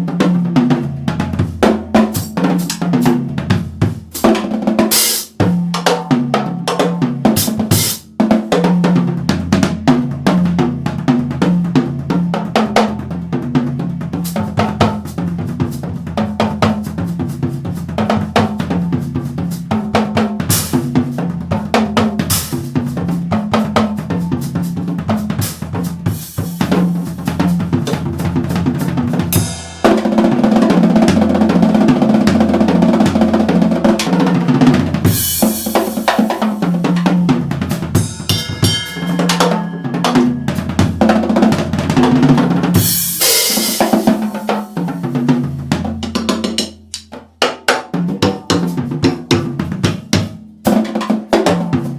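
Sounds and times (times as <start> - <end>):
drum kit playing: 0.0 - 51.9
cymbals crashing: 38.0 - 41.9, 42.8 - 45.1.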